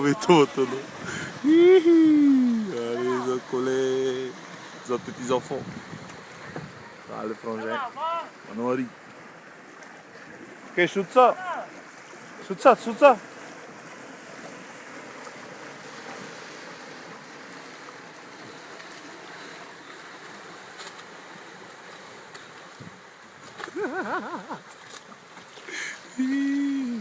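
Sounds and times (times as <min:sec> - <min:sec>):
person calling out: 0:00.0 - 0:03.5, 0:07.7 - 0:08.3, 0:26.2 - 0:27.0
rushing water and surf: 0:00.0 - 0:27.0.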